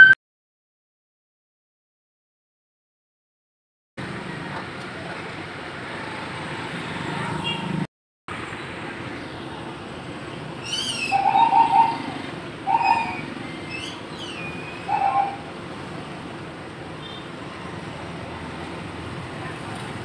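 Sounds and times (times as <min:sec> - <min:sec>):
traffic noise: 0:04.0 - 0:20.0
bird cooing: 0:10.7 - 0:15.4.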